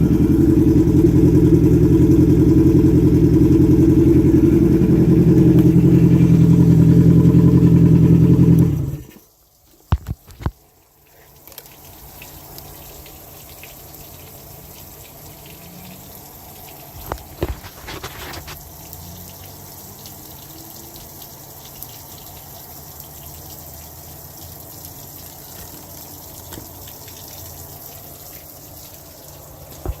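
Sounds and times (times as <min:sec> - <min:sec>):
outboard motor running: 0:00.0 - 0:09.2.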